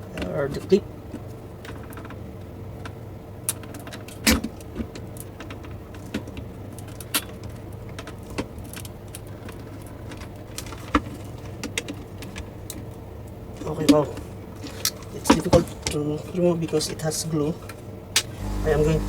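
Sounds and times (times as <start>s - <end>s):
steady low hum: 18.4s - 19.0s.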